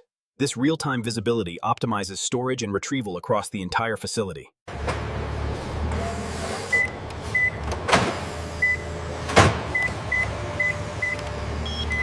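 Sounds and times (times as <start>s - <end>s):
barcode scanner beeps: 9.8s - 12.0s.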